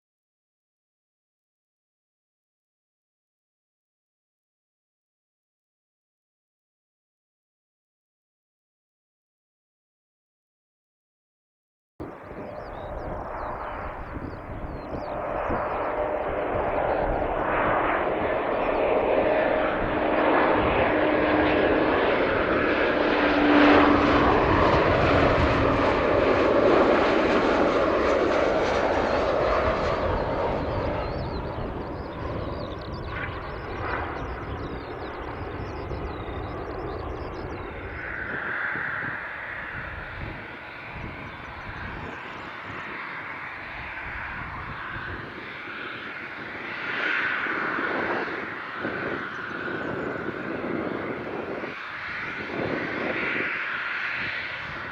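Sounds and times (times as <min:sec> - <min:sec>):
jet airliner engines: 0:12.0 - 0:54.9.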